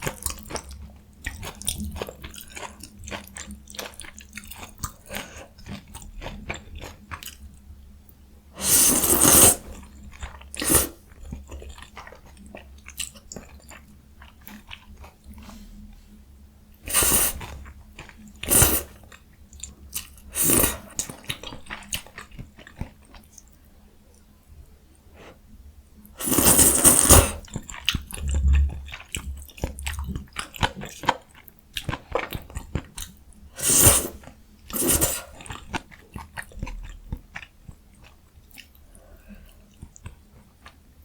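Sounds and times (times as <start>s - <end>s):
chewing noodles close up: 0.1s - 7.5s, 16.9s - 23.5s, 26.2s - 40.8s
loud noisy eating bursts: 8.6s - 9.8s, 10.6s - 11.0s, 16.9s - 17.5s, 18.4s - 19.0s, 20.3s - 20.9s, 26.2s - 27.5s, 33.6s - 35.4s.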